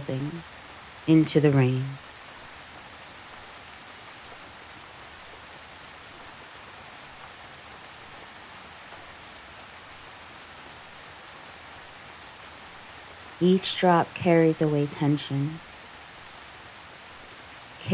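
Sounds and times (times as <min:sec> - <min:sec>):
gentle rain hiss: 0:00.0 - 0:17.9
raindrop ticks: 0:03.3 - 0:11.1, 0:11.8 - 0:17.9.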